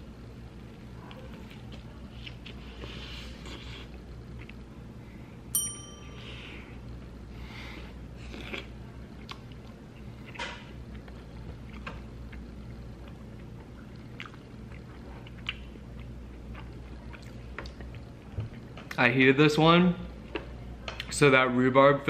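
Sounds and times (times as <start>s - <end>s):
person chewing food: 1.4s - 4.7s, 8.1s - 18.7s
bell-like ding: 5.6s - 6.4s.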